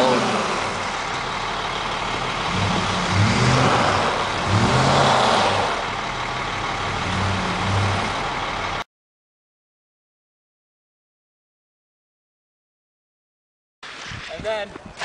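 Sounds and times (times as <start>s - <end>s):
vehicles passing on wet road: 0.0s - 8.8s.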